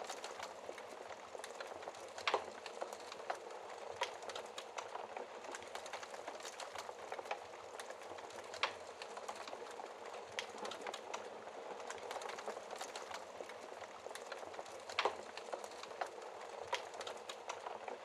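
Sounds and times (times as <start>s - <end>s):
fire pops and snaps: 0.0s - 18.0s
wood fire crackling: 0.0s - 18.0s.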